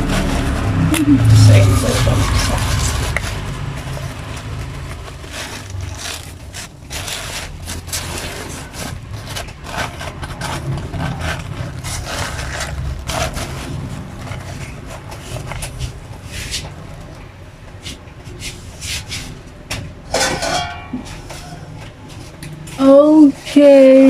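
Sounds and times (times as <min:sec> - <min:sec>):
steady low rumble: 0:00.0 - 0:17.8
scraping and knocking on cooking pot: 0:17.8 - 0:22.7.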